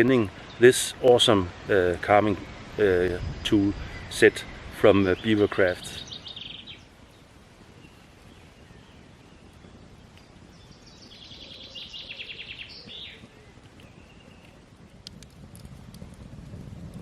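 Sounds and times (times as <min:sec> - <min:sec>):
songbird trilling: 0:06.0 - 0:06.9, 0:10.5 - 0:14.4
faint bird call: 0:11.0 - 0:14.6.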